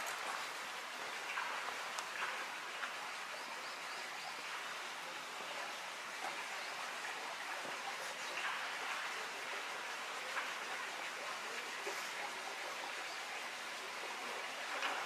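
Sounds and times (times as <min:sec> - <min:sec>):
rain hissing: 0:00.0 - 0:01.0.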